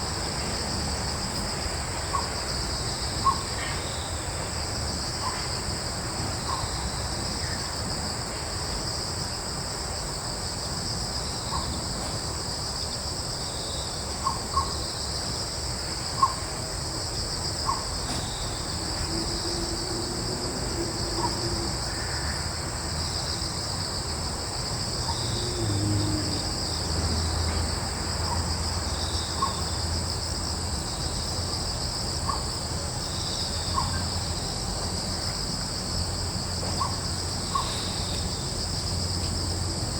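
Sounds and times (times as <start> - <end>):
crickets and insects chorus: 0.0 - 39.9
low rumble of breeze: 0.0 - 39.9.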